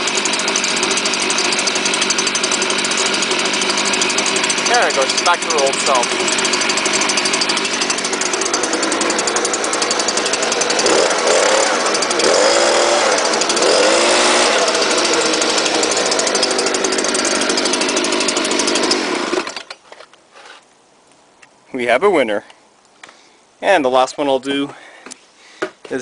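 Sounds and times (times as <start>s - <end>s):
leaf blower engine running: 0.0s - 19.7s.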